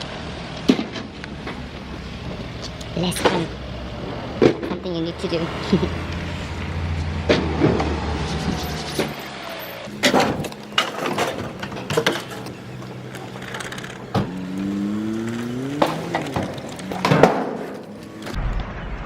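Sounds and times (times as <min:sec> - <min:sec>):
vehicle engine running: 0:00.0 - 0:18.4
bulky rubbish bangs and clatters: 0:09.9 - 0:12.8, 0:15.8 - 0:17.8.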